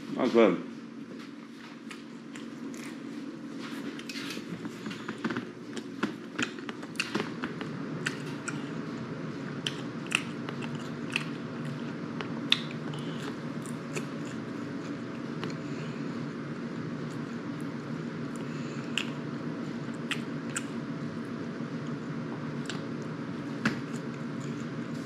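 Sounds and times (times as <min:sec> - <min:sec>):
steady low hum: 0:00.0 - 0:25.0
person chewing and biting: 0:04.8 - 0:15.6, 0:18.2 - 0:20.8.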